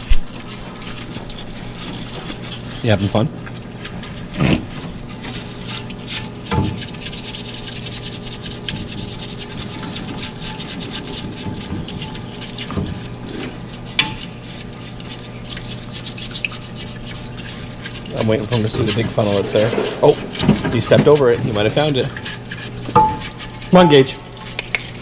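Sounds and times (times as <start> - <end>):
rubbing or scrubbing strokes: 0.0 - 25.0
steady low hum: 0.0 - 25.0.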